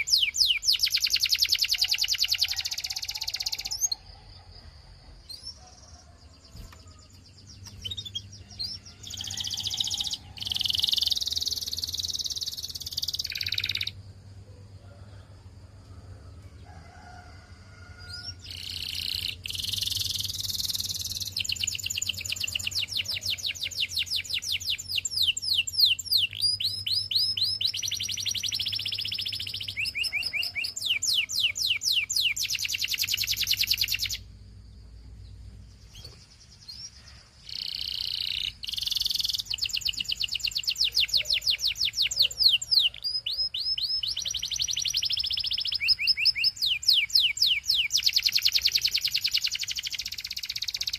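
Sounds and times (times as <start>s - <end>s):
canary singing trills: 0.0s - 14.2s, 17.9s - 34.4s, 35.1s - 50.9s.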